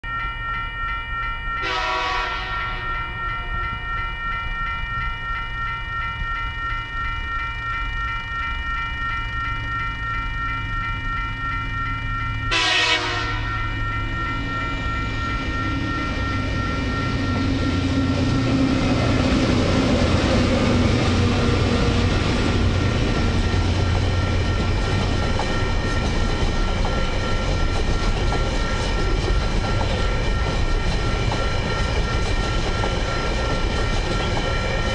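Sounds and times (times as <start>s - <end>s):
train wheel noise: 0.1s - 34.9s
diesel locomotive horn: 1.6s - 2.8s, 12.5s - 13.5s.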